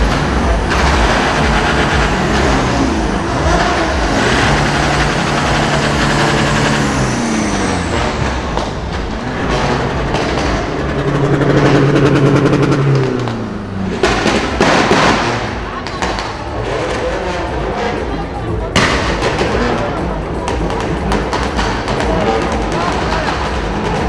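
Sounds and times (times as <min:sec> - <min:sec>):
sharp exhaust crackles: 0:00.0 - 0:17.1
car engines revving: 0:00.0 - 0:24.0.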